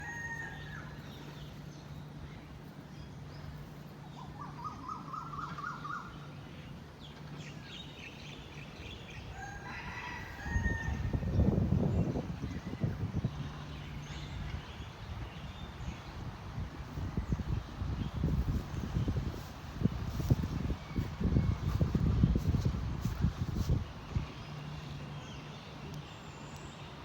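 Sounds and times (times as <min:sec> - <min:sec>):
steady low hum: 0:10.2 - 0:27.0
loud low rumbling: 0:15.8 - 0:25.1.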